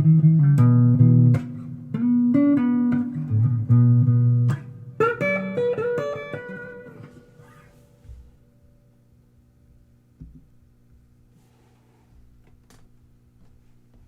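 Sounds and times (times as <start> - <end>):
blues guitar playing: 0.0 - 8.2.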